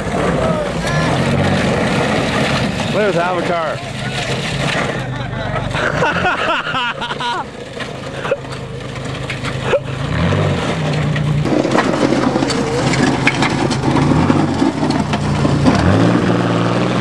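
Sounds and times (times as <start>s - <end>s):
car engine revving: 0.0s - 17.0s
voices shouting: 0.2s - 1.8s, 2.9s - 6.6s.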